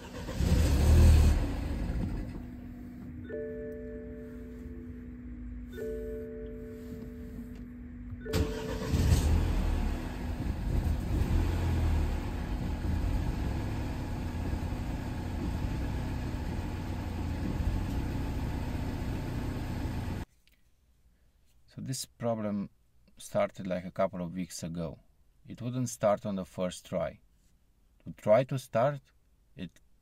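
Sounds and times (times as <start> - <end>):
engine cranking and idling: 0.0 - 3.1, 8.2 - 20.2.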